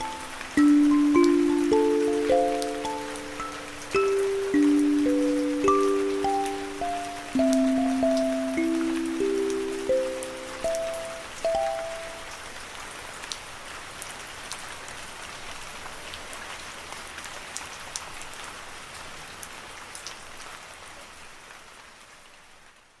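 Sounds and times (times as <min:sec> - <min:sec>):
drops ticking: 0:00.0 - 0:12.3
steady rain: 0:00.0 - 0:23.0.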